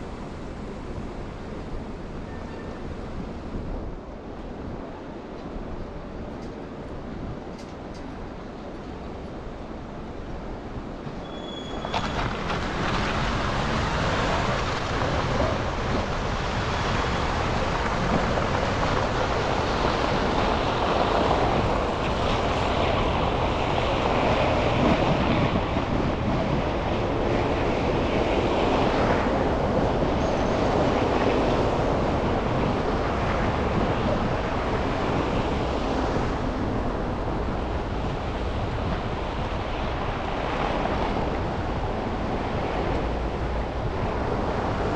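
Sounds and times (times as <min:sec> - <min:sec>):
passing vehicles: 0:10.8 - 0:44.9.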